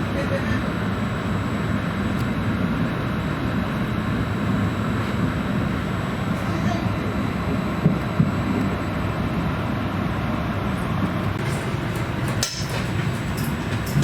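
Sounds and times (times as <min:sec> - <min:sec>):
train rumbling along track: 0:04.5 - 0:14.0.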